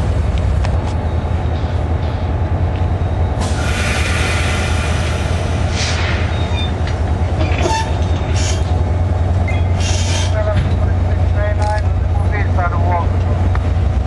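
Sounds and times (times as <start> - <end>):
diesel train rumbling: 0.0 - 14.0
hiss: 3.4 - 6.3.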